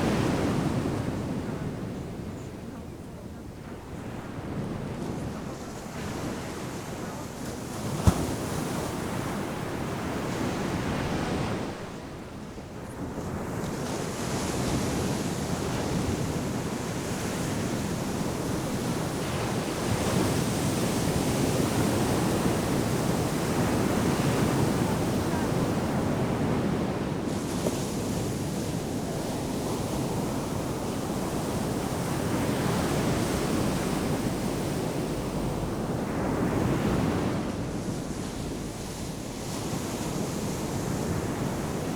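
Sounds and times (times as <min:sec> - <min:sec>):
ocean surf breaking: 0:22.6 - 0:41.9.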